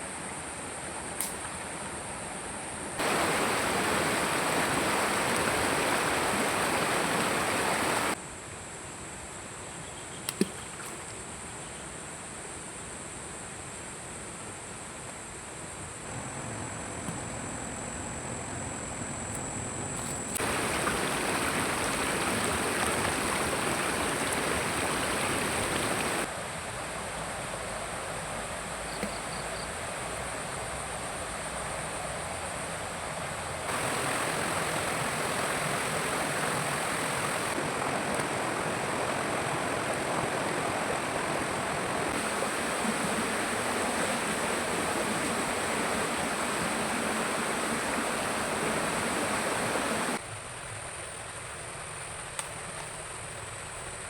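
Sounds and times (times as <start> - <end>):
forest stream rushing: 0.0 - 8.2, 20.0 - 54.0.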